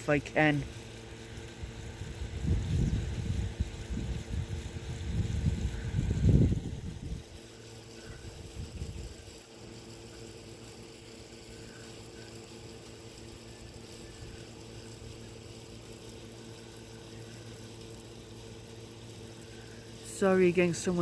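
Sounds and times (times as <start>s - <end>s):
air conditioner hum: 0.0s - 21.0s.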